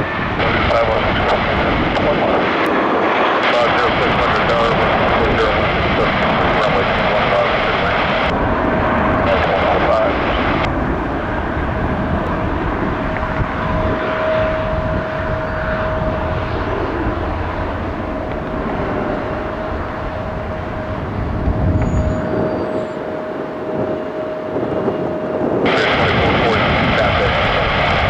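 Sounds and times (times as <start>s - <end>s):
jet engine rumble: 0.0s - 28.0s
jet engines whining: 0.0s - 28.0s.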